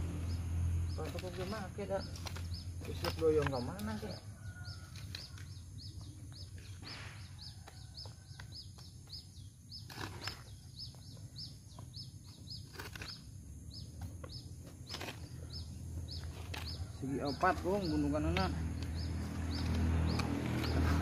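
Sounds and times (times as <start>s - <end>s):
bird chirping: 0.0s - 21.0s.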